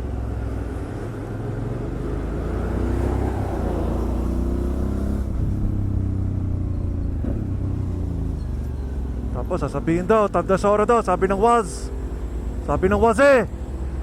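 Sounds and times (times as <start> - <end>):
motorcycle engine accelerating: 0.0 - 9.3
wind and road noise: 0.0 - 14.0.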